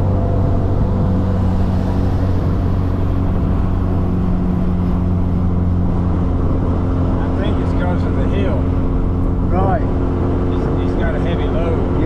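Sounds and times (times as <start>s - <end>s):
car engine driving: 0.0s - 12.0s
road noise: 0.0s - 12.0s
wind noise: 0.0s - 12.0s.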